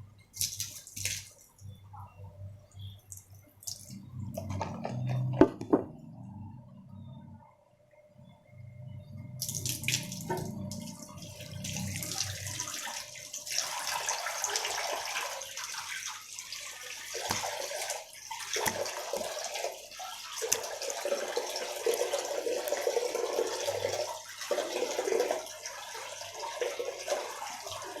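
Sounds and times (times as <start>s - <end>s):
water running into sink: 9.4s - 28.0s.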